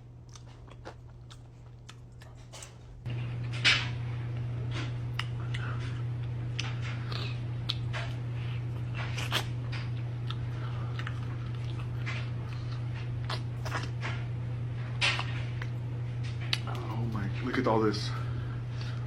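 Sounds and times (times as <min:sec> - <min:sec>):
person chewing fried chicken: 0:00.0 - 0:02.8, 0:05.0 - 0:14.0
steady low hum: 0:00.0 - 0:19.0.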